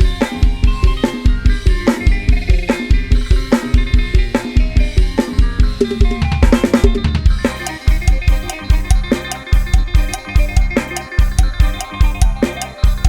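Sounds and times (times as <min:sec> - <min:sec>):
drum kit beat: 0:02.7 - 0:13.0
bass line: 0:05.7 - 0:13.0
melodic instruments: 0:07.4 - 0:13.0.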